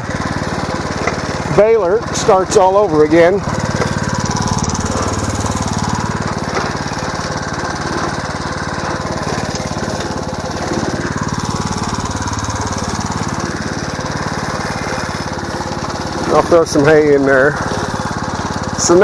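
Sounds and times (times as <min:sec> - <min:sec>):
small gas engine running: 0:00.0 - 0:19.0.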